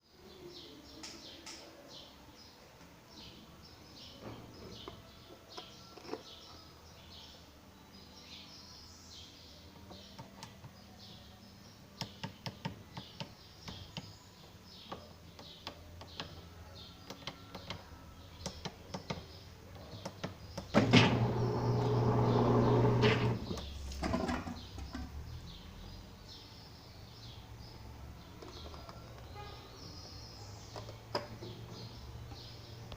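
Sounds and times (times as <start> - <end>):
birds chirping faintly: 0.0 - 32.9
washing machine motor hum: 20.7 - 24.6.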